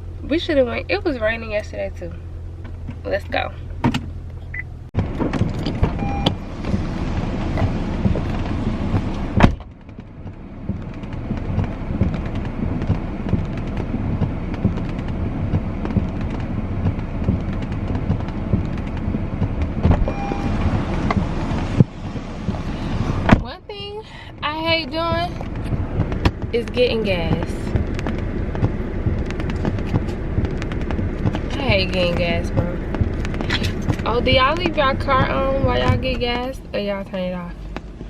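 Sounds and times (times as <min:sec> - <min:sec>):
car engine and road noise: 0:00.0 - 0:38.0
small knocks and rattles: 0:25.3 - 0:36.2.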